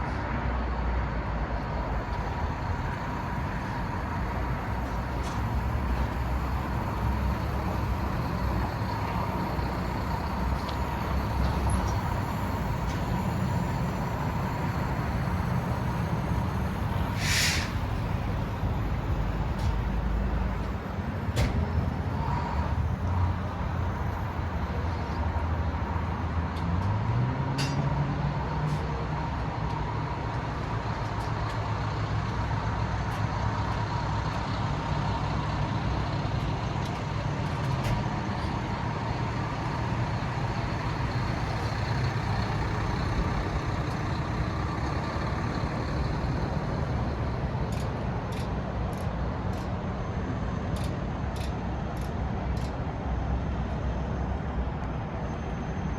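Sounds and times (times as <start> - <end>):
diesel truck engine idling: 1.6 - 27.1, 28.3 - 50.7
faint steady whine: 1.7 - 26.4.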